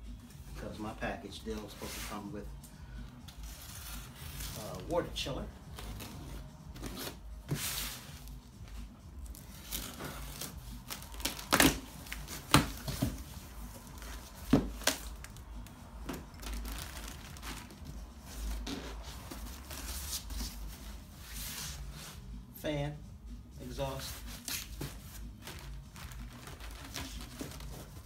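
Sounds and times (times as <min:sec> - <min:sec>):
packaging crinkling and rustling: 0:16.0 - 0:20.6, 0:24.4 - 0:28.0.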